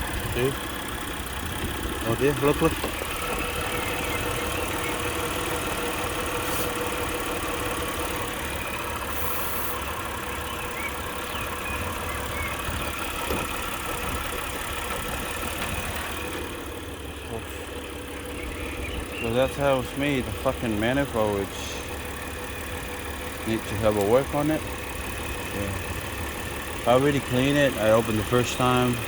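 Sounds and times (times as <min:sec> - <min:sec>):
car engine idling: 0:00.0 - 0:29.0
spray hiss: 0:09.1 - 0:09.8.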